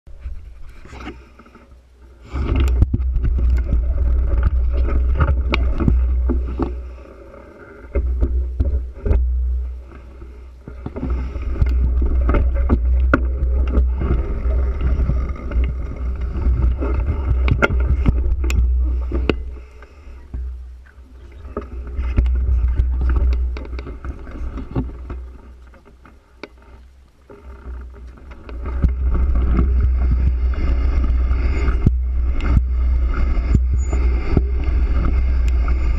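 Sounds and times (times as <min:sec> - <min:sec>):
wind buffeting microphone: 0:28.6 - 0:35.9.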